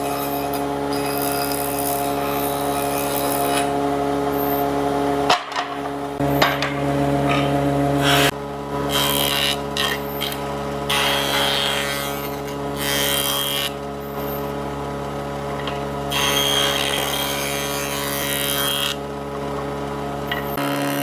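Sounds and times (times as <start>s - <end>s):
power tool cutting wood: 0.0s - 4.8s, 7.3s - 14.6s, 16.1s - 19.1s, 20.4s - 21.0s.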